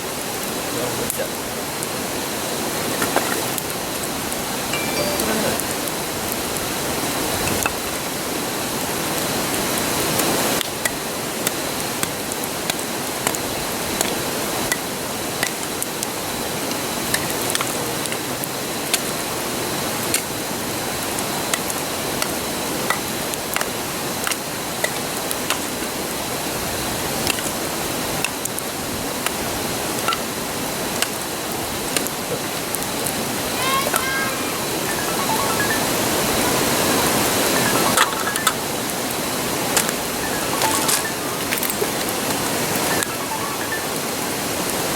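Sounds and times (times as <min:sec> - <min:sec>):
campfire crackling and popping: 0:08.8 - 0:19.2, 0:21.0 - 0:33.2
river rushing: 0:32.6 - 0:44.9.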